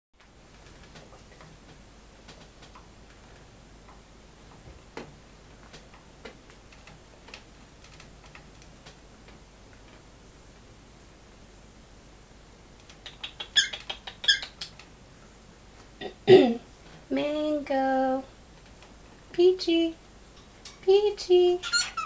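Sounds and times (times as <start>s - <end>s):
cockatiels clicking and tapping: 5.0s - 9.4s, 12.8s - 14.9s.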